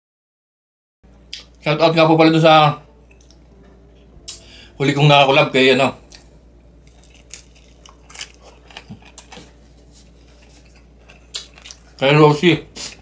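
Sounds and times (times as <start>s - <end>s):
faint low hum: 1.1s - 13.0s
person chewing food: 6.0s - 12.0s.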